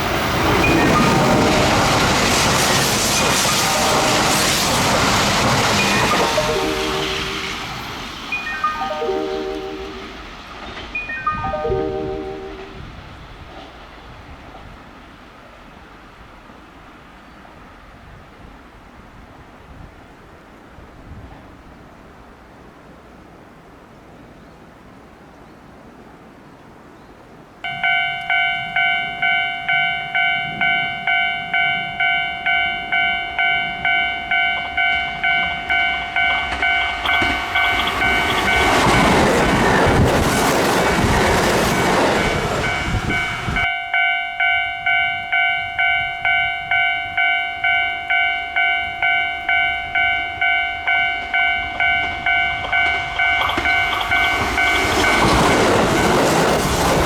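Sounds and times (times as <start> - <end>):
level-crossing alarm ringing: 0.0 - 12.8, 27.6 - 57.0
train wheel and rail noise: 0.0 - 57.0.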